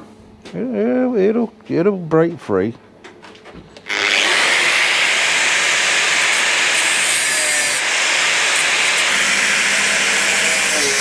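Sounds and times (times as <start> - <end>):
power tool cutting metal tank: 3.9 - 11.0.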